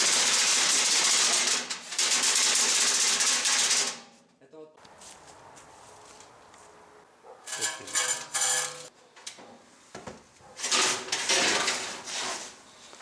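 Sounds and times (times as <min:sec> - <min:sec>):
metal clinking: 0:07.3 - 0:08.9
scraping rustling clatter: 0:07.3 - 0:08.9, 0:10.4 - 0:13.0.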